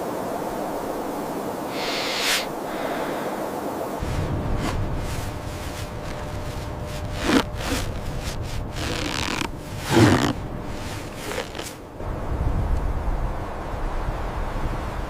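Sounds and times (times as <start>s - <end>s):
wind rumble: 0.0s - 15.0s
rasping scraping noises: 4.0s - 11.8s.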